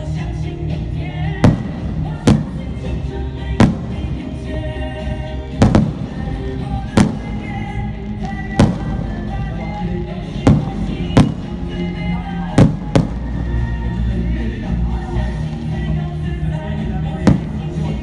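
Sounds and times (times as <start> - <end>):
music: 0.0 - 18.0
fireworks bangs: 1.3 - 14.1, 17.2 - 18.0.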